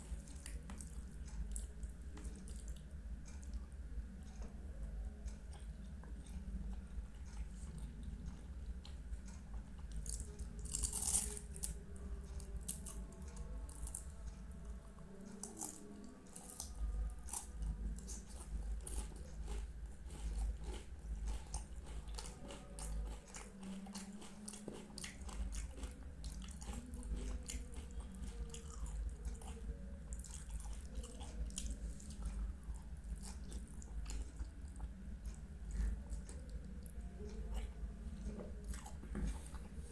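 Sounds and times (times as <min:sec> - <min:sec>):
person biting and chewing: 0:10.0 - 0:11.8.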